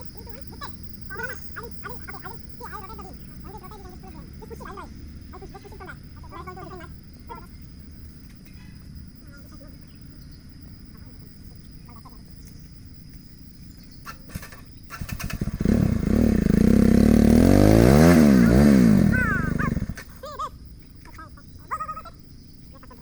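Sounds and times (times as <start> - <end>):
motorcycle engine revving: 0.0 - 9.2, 13.8 - 20.3.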